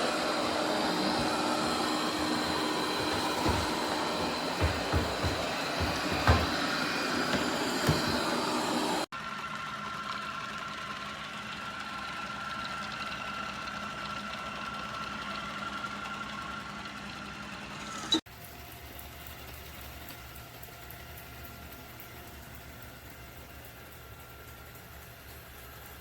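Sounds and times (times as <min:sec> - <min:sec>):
robot vacuum humming: 0:00.0 - 0:09.1.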